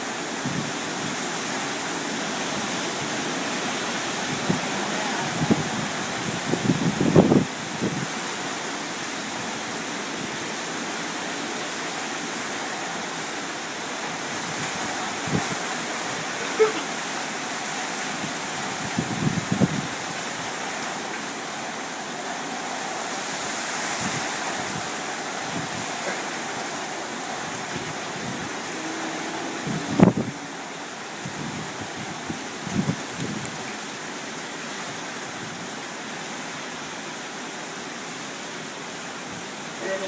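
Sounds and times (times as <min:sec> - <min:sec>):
heavy rain and wind: 0:00.0 - 0:40.0.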